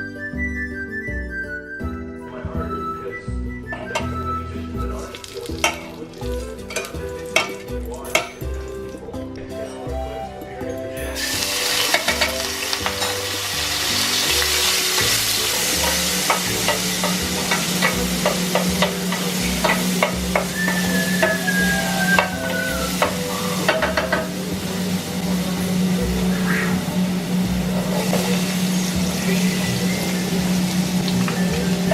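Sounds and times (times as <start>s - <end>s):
food sizzling in oil: 3.8s - 9.0s, 11.2s - 31.9s
utensil scraping a pan: 11.3s - 24.5s.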